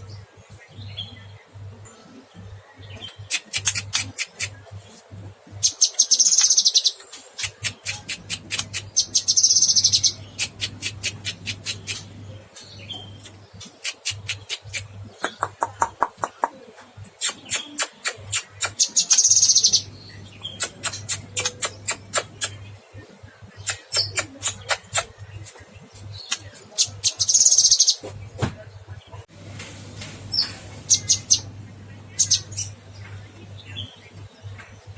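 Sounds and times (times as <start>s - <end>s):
bird singing sharp chipping notes: 17.2s - 22.6s, 23.6s - 28.5s.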